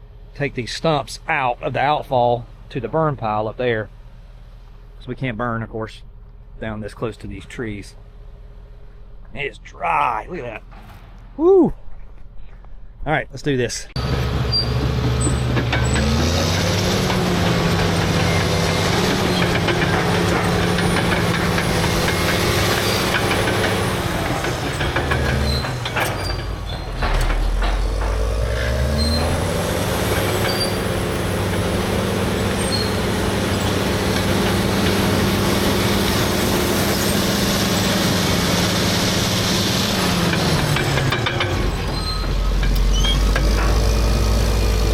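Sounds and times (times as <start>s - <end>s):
bulldozer diesel engine running: 14.0s - 44.9s.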